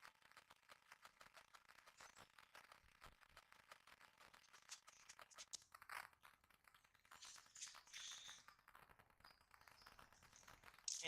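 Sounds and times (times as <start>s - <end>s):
faint small clicks: 0.9s - 6.1s.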